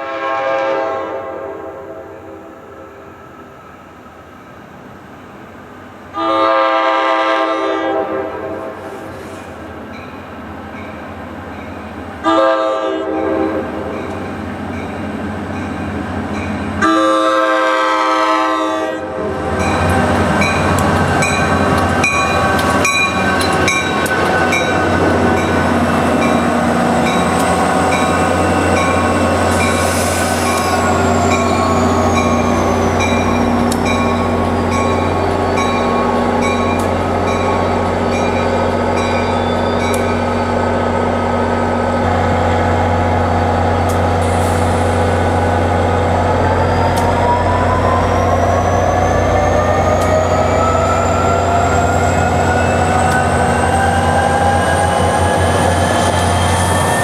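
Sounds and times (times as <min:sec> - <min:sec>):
train horn blasts: 0:00.0 - 0:03.0, 0:06.1 - 0:09.0, 0:12.2 - 0:14.0, 0:16.8 - 0:25.5
train passing with wheel noise: 0:00.0 - 0:57.0.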